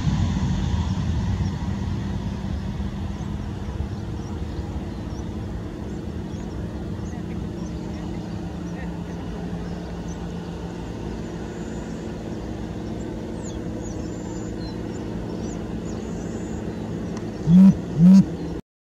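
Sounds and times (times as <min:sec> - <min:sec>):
aircraft droning hum: 0:00.0 - 0:18.6
loud low hoots: 0:17.4 - 0:18.4.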